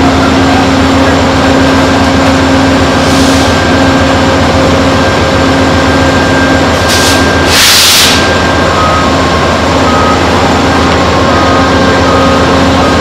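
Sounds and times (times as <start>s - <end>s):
idling train drone: 0.0s - 13.0s
air hiss: 6.9s - 8.2s.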